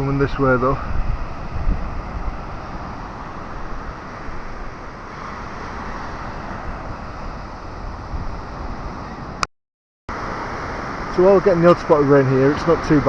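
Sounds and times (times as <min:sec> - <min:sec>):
wind buffeting microphone: 0:00.0 - 0:09.4
waves washing onto beach: 0:00.0 - 0:09.5, 0:10.1 - 0:13.0.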